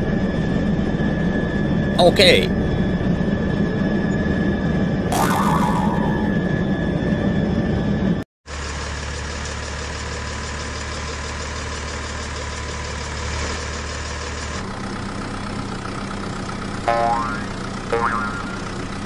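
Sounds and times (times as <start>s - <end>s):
vehicle engine idling: 8.5s - 19.0s.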